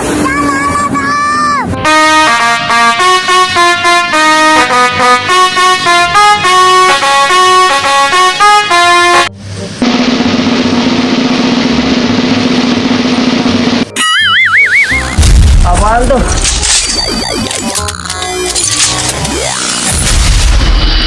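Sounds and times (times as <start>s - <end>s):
multi-tone bus horn tune: 1.6s - 9.5s
long buzzy horn blast: 1.8s - 9.3s.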